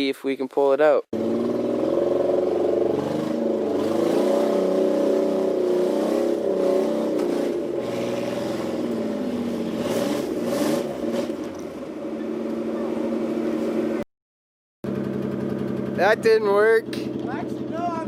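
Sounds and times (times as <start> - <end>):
engine revving under load: 1.1 - 14.0.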